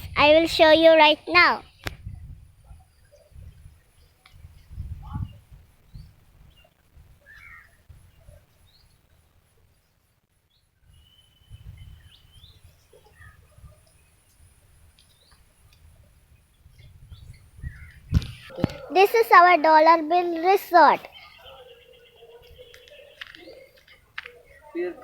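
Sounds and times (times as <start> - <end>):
birds chirping and whistling: 4.8 - 8.9, 10.9 - 14.0, 16.5 - 18.9, 20.9 - 24.8.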